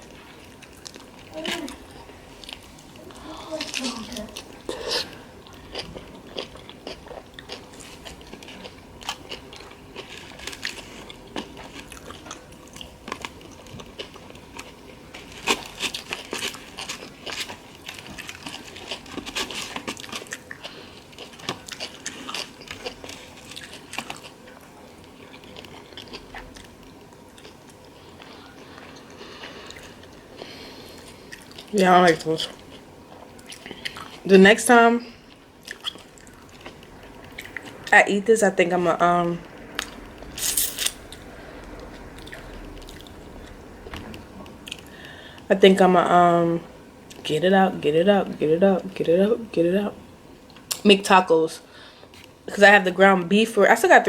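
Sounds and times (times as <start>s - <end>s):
person chewing crunchy food: 0.0s - 34.3s, 35.1s - 38.0s, 39.4s - 45.5s.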